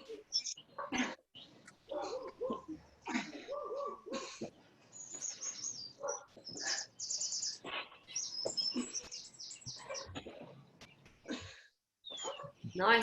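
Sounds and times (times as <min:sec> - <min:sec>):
small bird chirping and trilling: 0:00.2 - 0:00.7, 0:04.9 - 0:10.1, 0:12.0 - 0:12.7.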